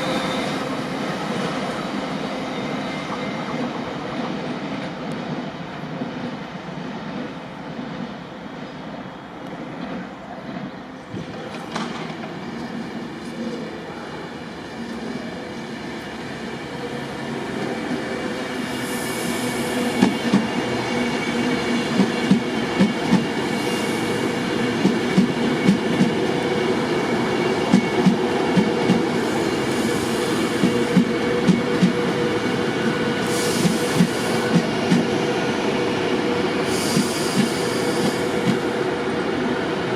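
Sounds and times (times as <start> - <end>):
train rumble: 16.6 - 39.9.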